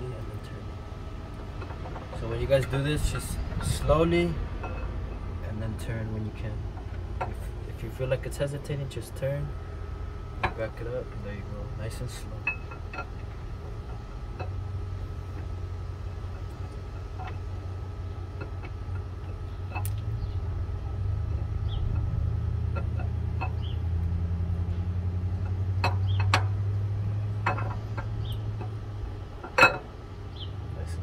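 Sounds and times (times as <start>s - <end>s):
low motor hum: 0.0s - 31.0s
light metallic clicks and taps: 18.4s - 20.1s.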